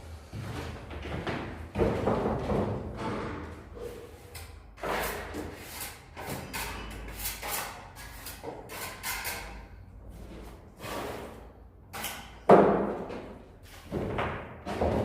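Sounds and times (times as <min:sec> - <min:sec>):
hand tool scraping plaster: 0:03.9 - 0:09.5.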